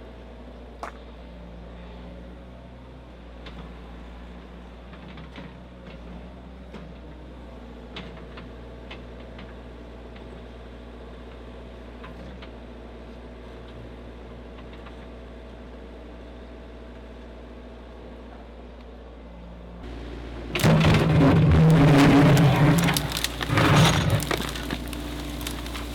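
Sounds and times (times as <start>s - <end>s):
low engine hum: 17.9s - 25.9s.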